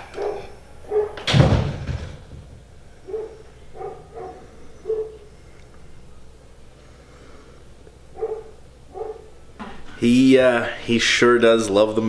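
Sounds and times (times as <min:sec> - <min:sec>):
dog whining: 0:00.0 - 0:01.3, 0:08.2 - 0:09.3
door slamming: 0:00.0 - 0:02.7.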